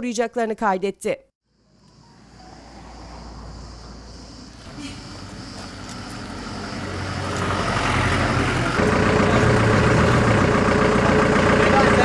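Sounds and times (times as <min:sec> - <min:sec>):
vehicle engine running: 0:02.8 - 0:12.0.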